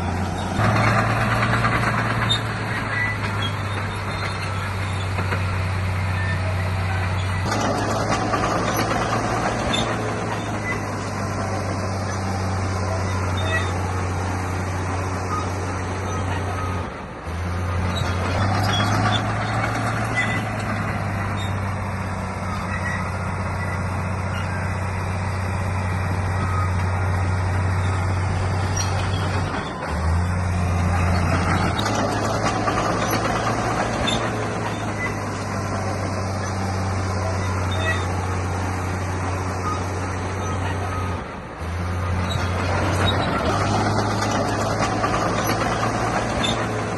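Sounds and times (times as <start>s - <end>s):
heavy diesel engine running: 0.0s - 46.9s.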